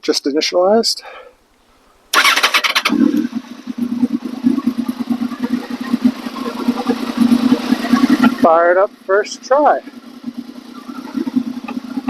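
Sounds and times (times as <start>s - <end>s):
engine cranking on starter: 2.1s - 8.8s
motorcycle engine idling: 2.1s - 12.0s.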